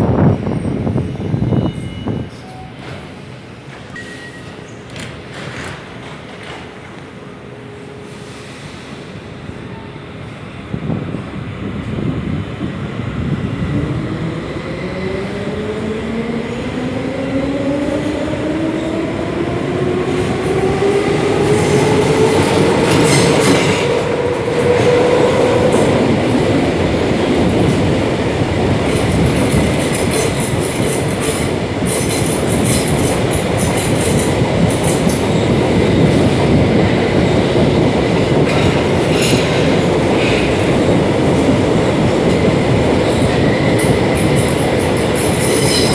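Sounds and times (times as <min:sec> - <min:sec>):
wheels rumbling on track: 0:10.8 - 0:45.9
wheel squeal: 0:45.2 - 0:45.9.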